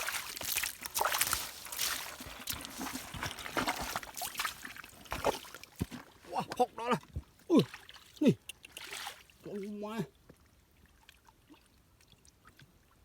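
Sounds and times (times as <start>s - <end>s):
muddy water splashing: 0.0s - 10.1s.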